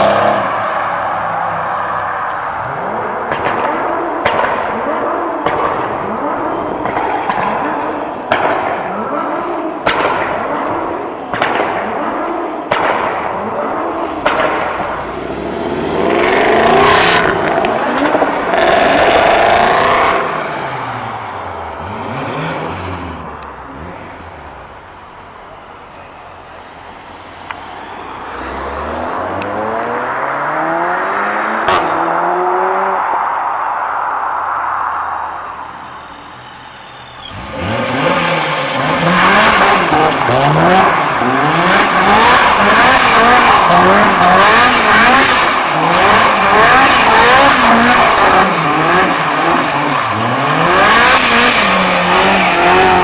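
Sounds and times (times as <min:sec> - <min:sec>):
car engines revving hard: 0:00.0 - 0:25.4, 0:26.9 - 0:33.6, 0:37.2 - 0:53.0
exhaust cracks: 0:01.9 - 0:21.3.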